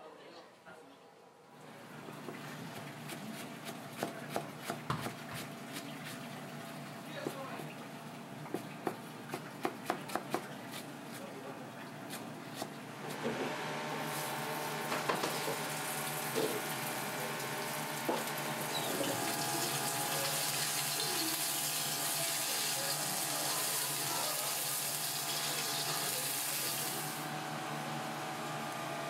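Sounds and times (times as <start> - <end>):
oil sizzling in a wok: 14.0 - 27.2.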